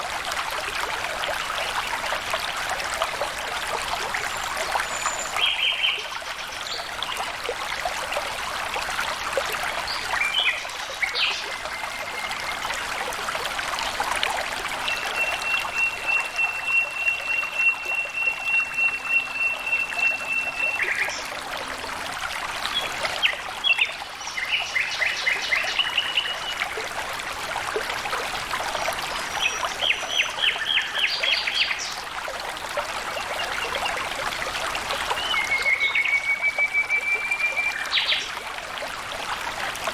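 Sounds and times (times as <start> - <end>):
water trickling and splashing: 0.0 - 39.9
birds whistling and chirping: 14.8 - 21.2, 35.2 - 38.3.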